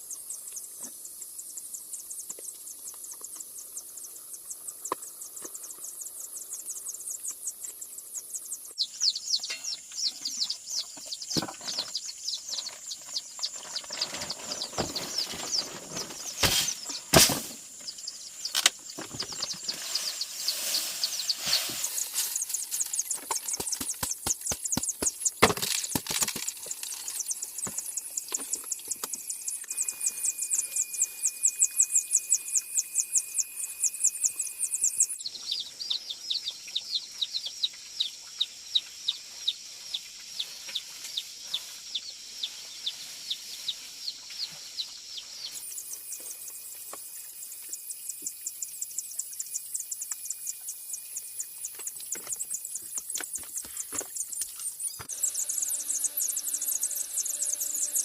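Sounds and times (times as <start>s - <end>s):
high-pitched chirping calls: 1.4s - 17.2s, 17.8s - 39.2s, 41.5s - 58.0s
sharp knocks and clattering: 10.9s - 12.8s
steady high tone: 29.1s - 35.1s, 55.0s - 58.0s.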